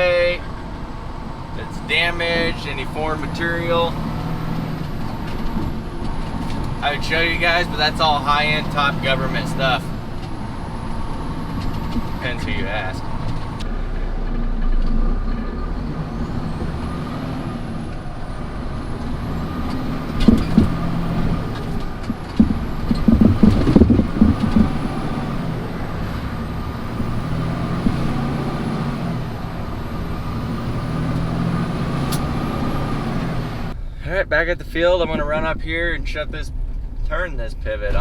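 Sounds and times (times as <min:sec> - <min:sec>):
truck engine running: 0:00.0 - 0:38.0
loud rattling and knocking: 0:18.8 - 0:28.3.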